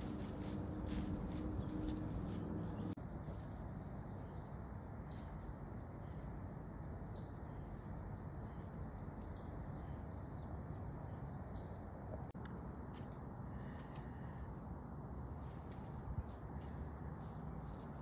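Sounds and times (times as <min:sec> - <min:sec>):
small birds chirping: 0:00.9 - 0:12.4.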